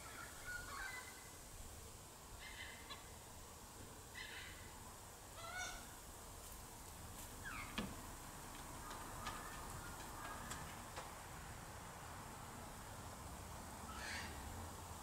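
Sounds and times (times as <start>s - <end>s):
light breeze: 0.0s - 15.0s
birds calling: 7.4s - 11.0s, 13.8s - 14.5s.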